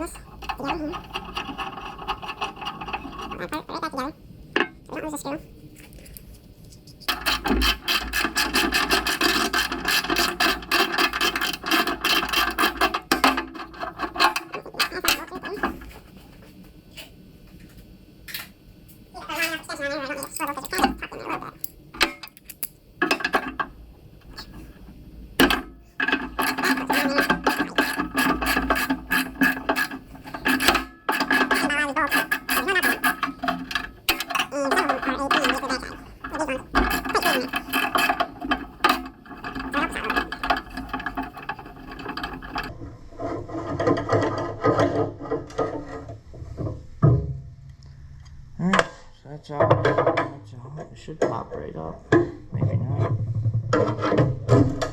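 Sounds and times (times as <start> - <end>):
hand tools clicking and scraping metal: 0.0 - 4.0, 5.8 - 16.0, 19.2 - 24.8, 25.4 - 42.8.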